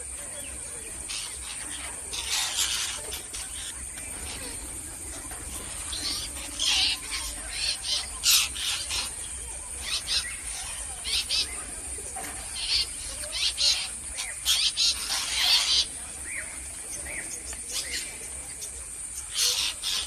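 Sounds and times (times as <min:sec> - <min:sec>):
parrots screeching: 0:02.1 - 0:03.4.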